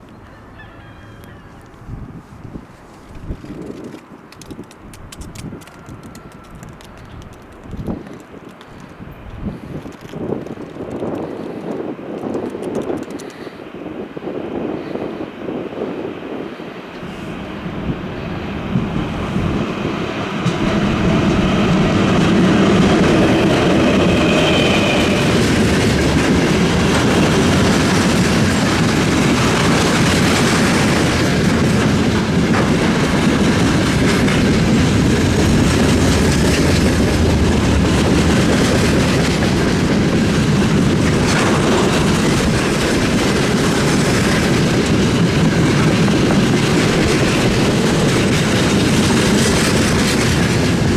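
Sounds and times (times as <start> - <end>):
electric locomotive running by: 0.0 - 50.9
wheels clattering over rail joints: 2.8 - 13.3, 20.2 - 50.9.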